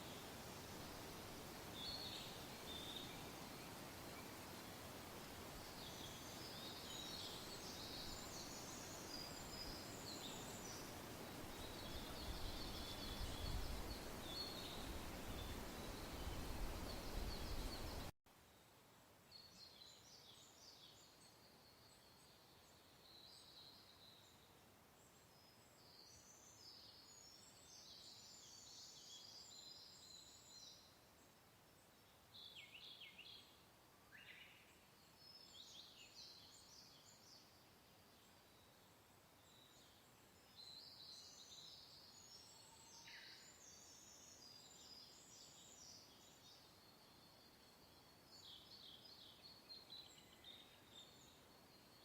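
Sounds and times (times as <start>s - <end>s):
small birds chirping: 5.6s - 18.1s.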